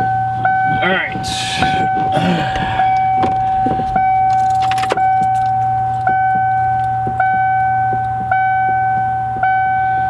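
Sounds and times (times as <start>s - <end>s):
keys jingling: 0.3s - 7.8s.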